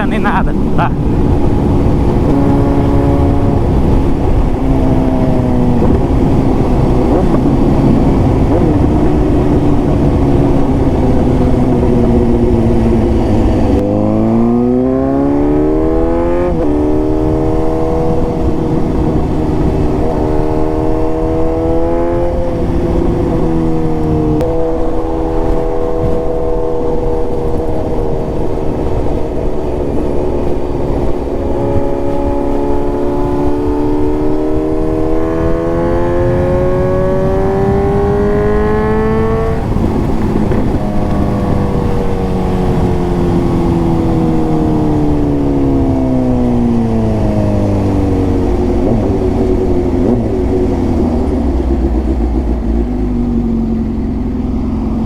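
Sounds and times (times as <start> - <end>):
motorcycle engine accelerating: 0.0 - 55.0
low rumble: 35.2 - 55.0.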